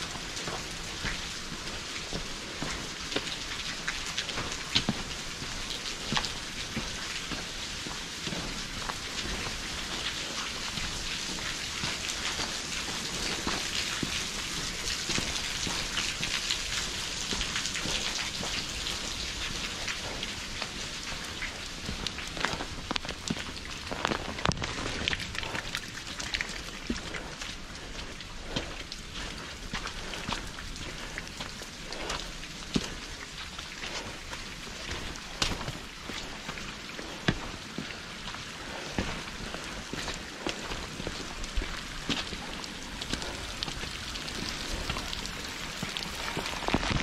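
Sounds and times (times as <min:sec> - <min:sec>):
footsteps on trail: 0:00.0 - 0:47.0
rain pattering on rock: 0:00.0 - 0:47.0.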